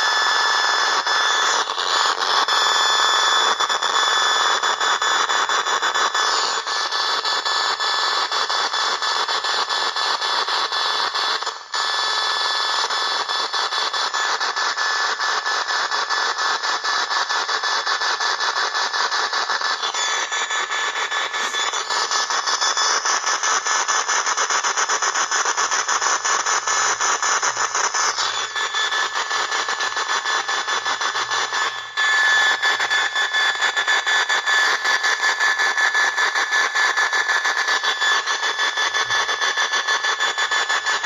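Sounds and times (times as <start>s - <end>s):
radio interference hissing and buzzing: 0.0s - 8.9s, 10.5s - 41.0s
steady whistle: 19.7s - 23.7s, 26.5s - 41.0s.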